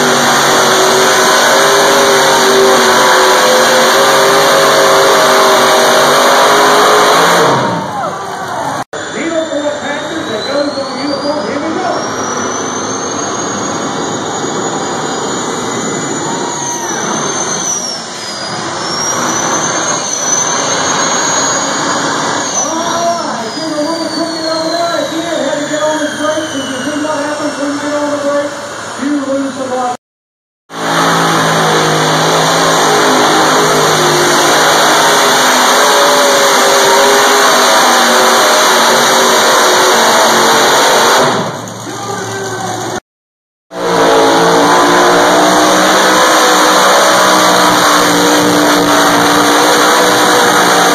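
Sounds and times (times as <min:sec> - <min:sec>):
engine running hard under load: 0:00.0 - 0:08.0, 0:30.7 - 0:43.0, 0:43.7 - 0:50.9
turbocharger whistle: 0:00.0 - 0:29.4, 0:30.7 - 0:42.4, 0:43.7 - 0:50.9.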